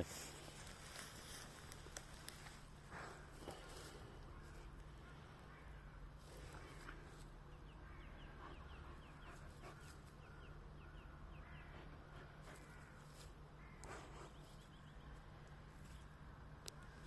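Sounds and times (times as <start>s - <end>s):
small bird chirping: 12.5s - 17.0s.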